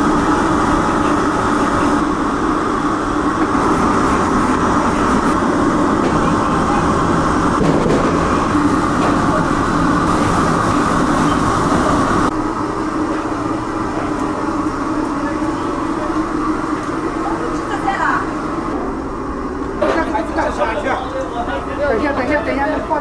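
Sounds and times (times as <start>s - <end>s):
machine roar: 0.0s - 13.0s
constant hum: 0.0s - 23.0s.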